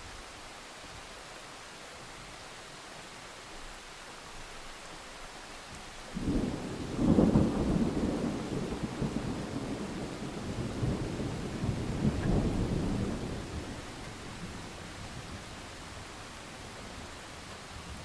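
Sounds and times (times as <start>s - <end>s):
steady rain hiss: 0.0s - 18.0s
thunder rumble: 6.2s - 15.5s.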